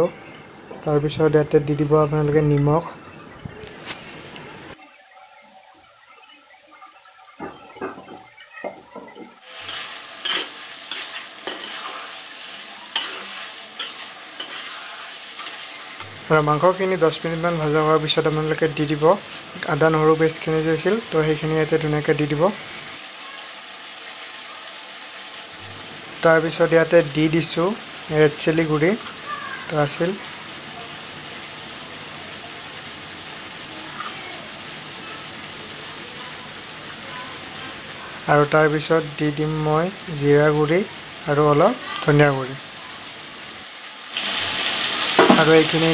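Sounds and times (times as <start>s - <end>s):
chicken frying in oil: 4.7s - 45.9s
metal spatula scraping a pan: 9.5s - 16.0s.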